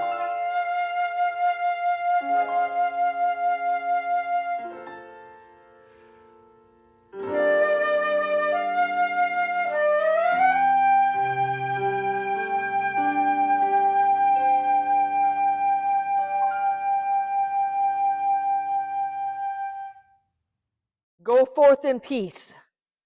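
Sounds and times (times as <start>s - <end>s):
flute-like melody with vibrato: 0.0s - 5.4s, 7.2s - 20.2s.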